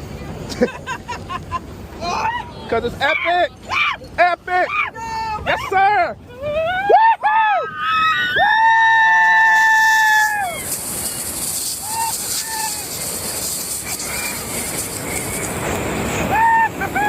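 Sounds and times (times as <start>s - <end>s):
wind and rain on microphone: 7.5s - 17.0s.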